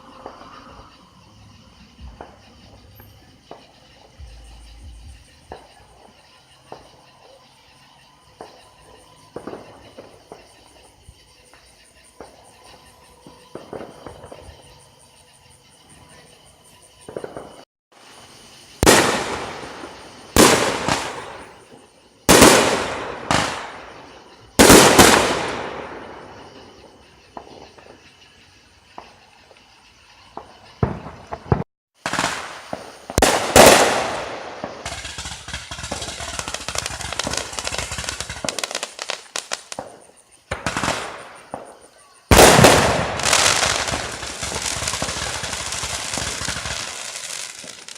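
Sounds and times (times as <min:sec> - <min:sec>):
fireworks booming with echo: 0:00.0 - 0:07.0, 0:08.3 - 0:10.8, 0:12.1 - 0:14.8, 0:17.0 - 0:28.1, 0:30.3 - 0:47.9
rapid firework crackling: 0:18.3 - 0:26.6, 0:30.8 - 0:41.6, 0:42.3 - 0:47.9.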